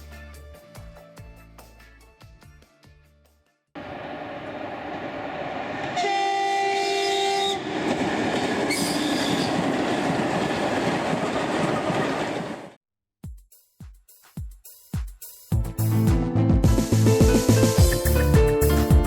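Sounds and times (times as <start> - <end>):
train horn: 5.7 - 7.9, 8.7 - 9.6
train rolling rumble: 7.2 - 12.8.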